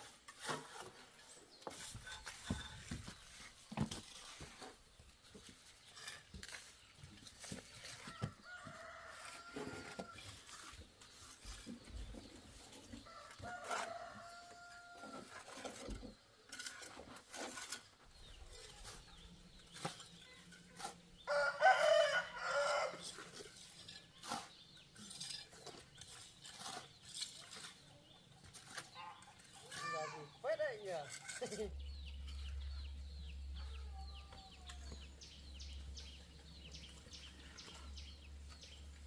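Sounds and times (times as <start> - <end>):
rooster crowing: 21.3 - 23.0.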